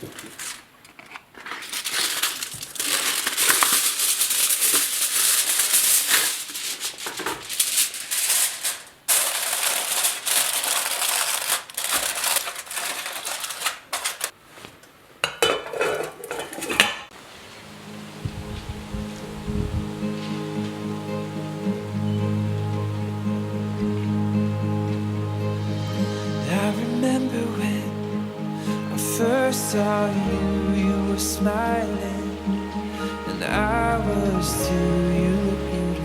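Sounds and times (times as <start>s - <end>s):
utensils scraping and clicking on dishes: 12.2s - 14.3s, 15.2s - 17.1s.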